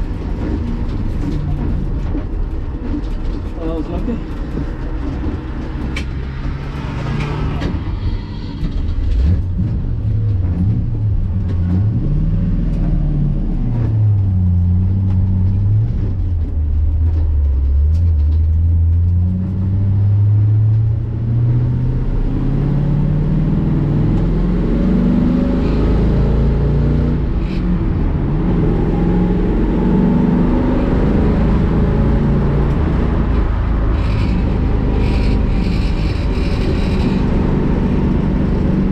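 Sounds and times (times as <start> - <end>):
race car engine at speed: 0.0 - 38.9.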